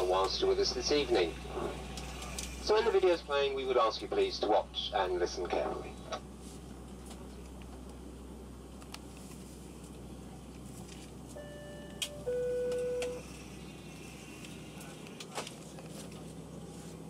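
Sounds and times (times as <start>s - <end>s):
aircraft cabin hum: 6.9s - 17.0s
short electronic tones: 11.4s - 13.2s.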